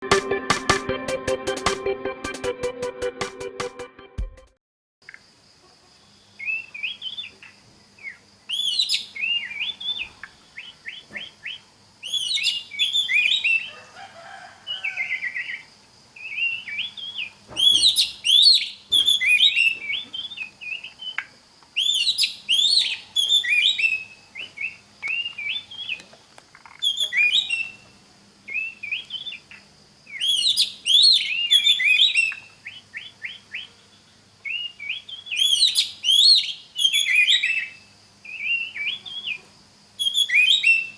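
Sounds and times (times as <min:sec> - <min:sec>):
bird singing whistles and trills: 0:08.0 - 0:10.0, 0:10.6 - 0:13.6, 0:16.2 - 0:21.2, 0:21.8 - 0:26.0, 0:26.8 - 0:27.8, 0:28.5 - 0:29.4, 0:30.1 - 0:33.7, 0:34.4 - 0:39.4, 0:40.0 - 0:40.9.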